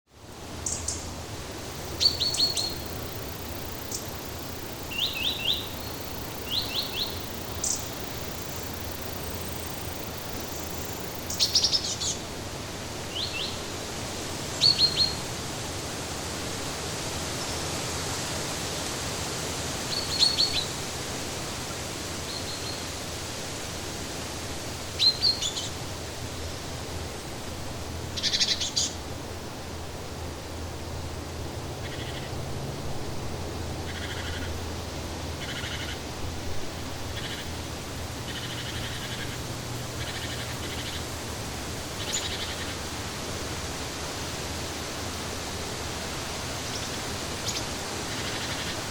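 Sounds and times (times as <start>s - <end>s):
steady background hiss: 0.1s - 48.9s
songbirds chirping: 0.6s - 12.4s.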